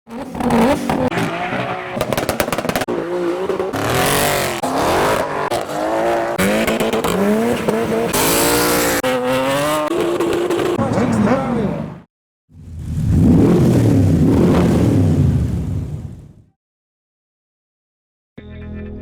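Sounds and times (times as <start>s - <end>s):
car engines revving: 0.1s - 16.2s
exhaust pops and crackles: 2.0s - 2.9s.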